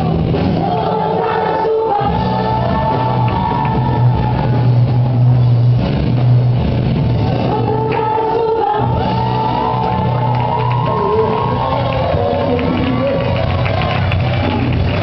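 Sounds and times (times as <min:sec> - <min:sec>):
voices singing: 0:00.0 - 0:05.0, 0:07.4 - 0:13.6
band with strong bass: 0:00.0 - 0:15.0.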